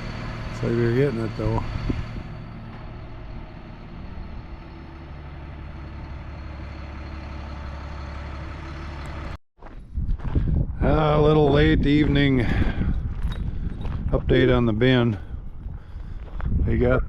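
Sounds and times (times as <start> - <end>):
large engine humming: 0.0 - 9.4.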